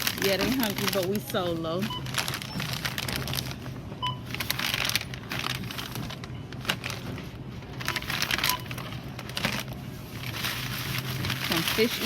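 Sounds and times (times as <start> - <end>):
crinkling and clattering objects: 0.0 - 12.0.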